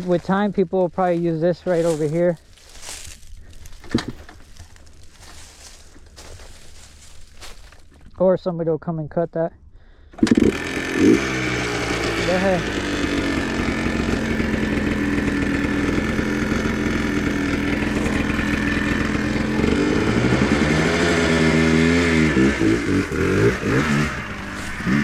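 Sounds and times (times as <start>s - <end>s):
atv engine revving: 10.2s - 25.0s.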